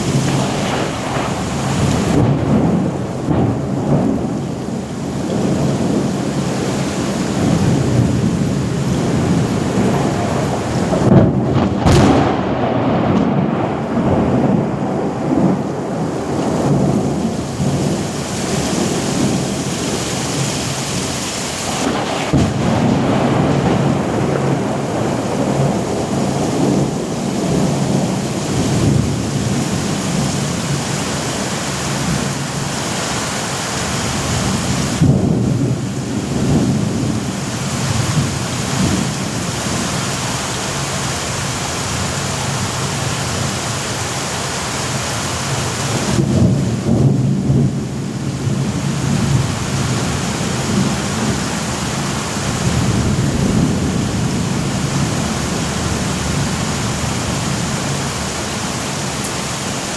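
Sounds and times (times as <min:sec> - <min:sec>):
sharp thunder crack: 0:00.0 - 0:19.9, 0:21.6 - 0:31.1, 0:34.1 - 0:40.0, 0:45.9 - 0:58.3
rolling thunder: 0:00.0 - 0:33.2, 0:33.8 - 0:43.8, 0:45.5 - 0:59.9
heavy rain: 0:00.0 - 0:59.9.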